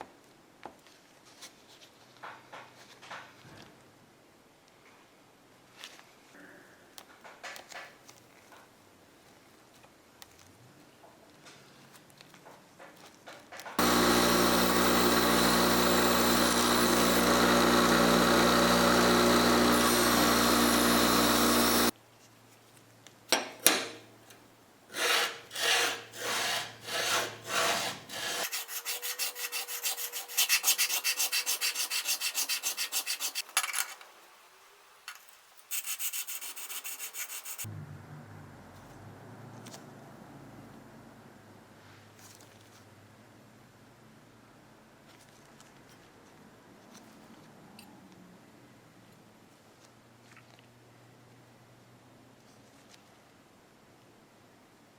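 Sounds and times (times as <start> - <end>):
power tool running: 13.8 - 21.9
rubbing strokes: 35.6 - 37.7.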